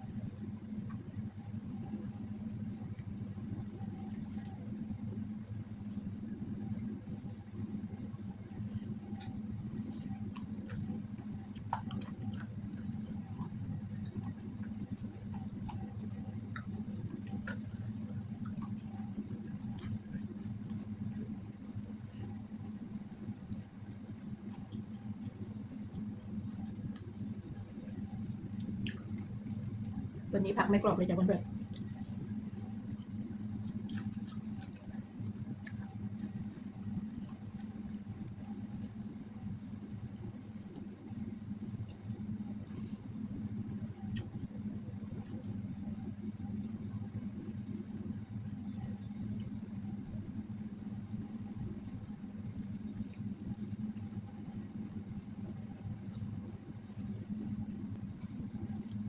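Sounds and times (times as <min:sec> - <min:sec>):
steady low hum: 0:00.0 - 0:59.0
chewing clicks and crunches: 0:02.9 - 0:30.3, 0:31.4 - 0:41.0, 0:41.7 - 0:46.2, 0:46.8 - 0:59.0.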